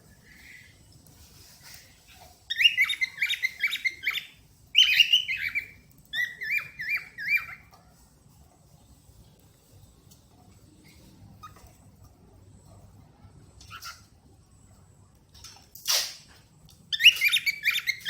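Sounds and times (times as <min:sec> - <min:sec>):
cockatiel whistling: 0:02.5 - 0:07.6, 0:16.9 - 0:18.0.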